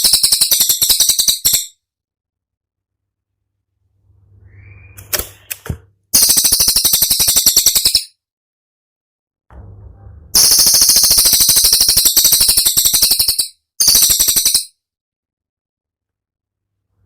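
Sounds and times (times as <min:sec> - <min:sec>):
songbird rapid trill: 0:00.0 - 0:01.7, 0:06.2 - 0:08.1, 0:10.4 - 0:14.7.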